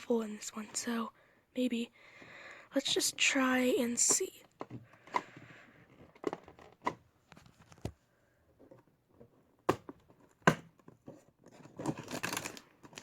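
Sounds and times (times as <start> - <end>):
packaging crinkling and tearing: 11.6 - 13.0.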